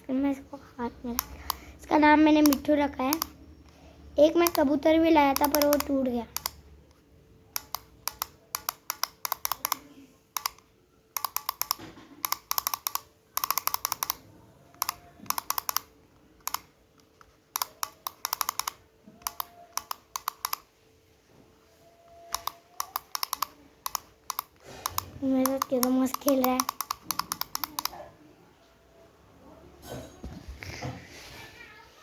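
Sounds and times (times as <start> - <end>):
clockwork toy clicking: 1.1 - 3.4, 4.2 - 6.6, 7.5 - 20.7, 22.1 - 28.0.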